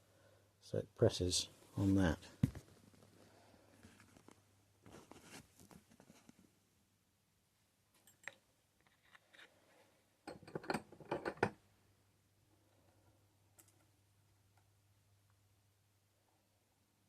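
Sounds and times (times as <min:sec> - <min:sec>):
metallic clicks and clinks: 0:08.0 - 0:08.4
knocks and clinks: 0:10.3 - 0:11.6.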